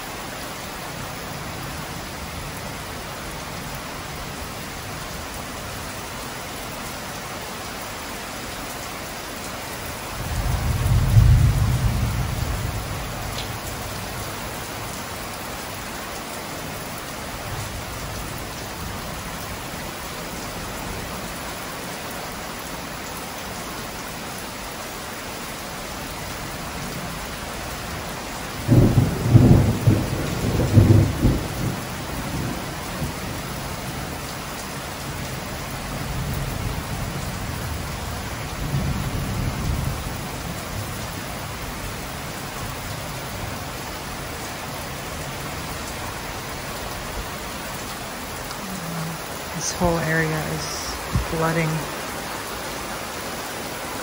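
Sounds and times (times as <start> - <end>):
heavy rain pouring: 0.0 - 54.0
thunder rumbling: 10.2 - 13.4, 28.6 - 33.2.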